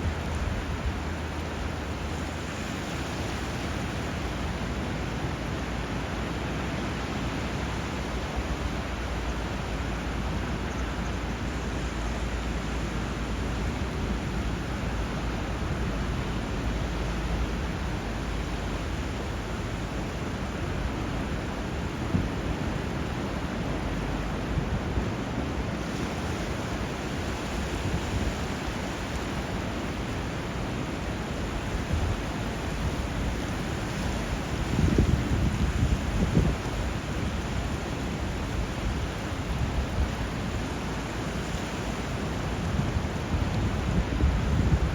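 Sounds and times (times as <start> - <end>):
flowing water rushing: 0.0 - 44.9
sea surf: 0.0 - 44.9.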